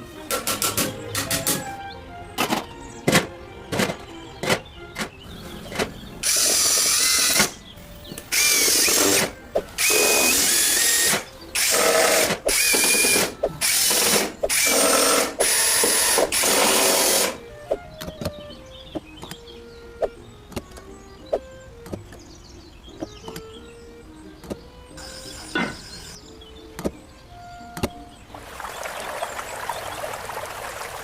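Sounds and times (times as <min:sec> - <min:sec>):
small power drill bursts: 0:06.2 - 0:07.6, 0:08.3 - 0:17.4, 0:25.0 - 0:26.2.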